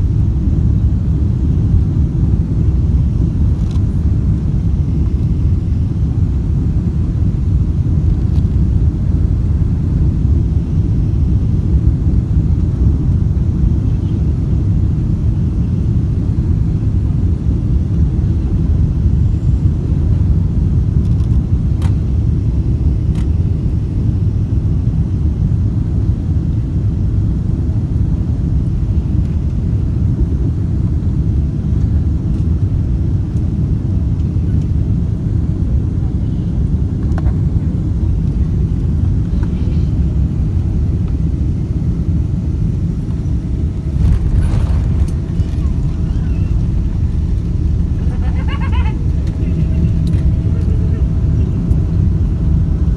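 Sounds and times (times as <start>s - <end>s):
airliner cabin rumble: 0.0s - 52.9s.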